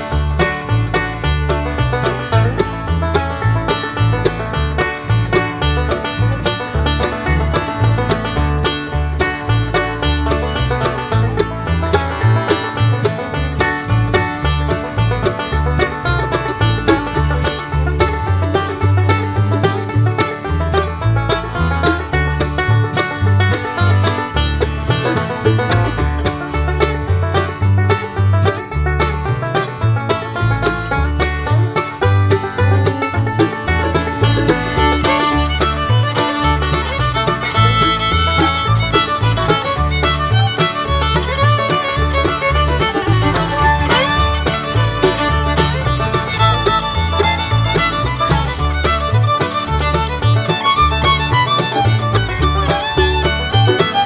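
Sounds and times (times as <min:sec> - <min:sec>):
banjo: 0:00.0 - 0:54.0
fiddle: 0:00.0 - 0:54.0
guitar: 0:00.0 - 0:54.0
steady beat: 0:32.4 - 0:54.0.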